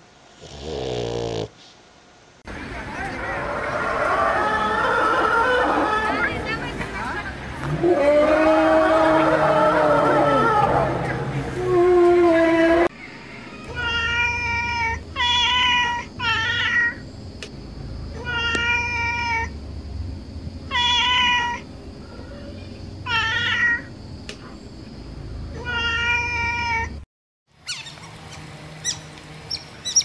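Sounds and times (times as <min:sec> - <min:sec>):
cat meowing: 0:13.7 - 0:17.0, 0:18.2 - 0:19.5, 0:20.7 - 0:21.6, 0:23.1 - 0:23.9, 0:25.6 - 0:26.9.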